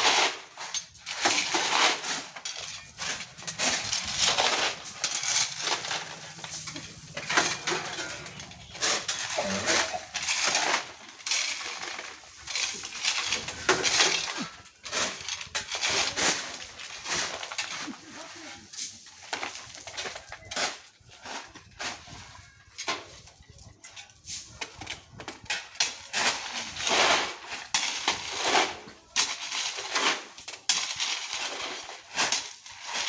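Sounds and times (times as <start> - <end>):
stones clattering: 1.2 - 17.8.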